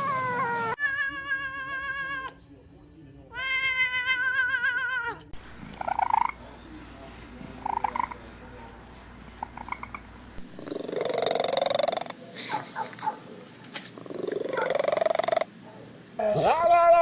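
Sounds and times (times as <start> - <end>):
cat meowing: 0.0 - 2.4, 3.3 - 5.3
faint high whine: 5.4 - 12.2
cat purring: 9.4 - 12.2, 13.9 - 15.5.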